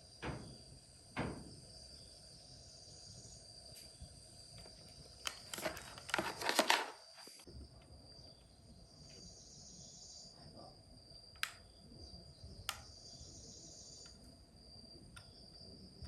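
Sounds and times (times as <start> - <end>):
crickets trilling: 0.0 - 16.0
sharp clicks: 11.3 - 11.7, 12.6 - 13.0.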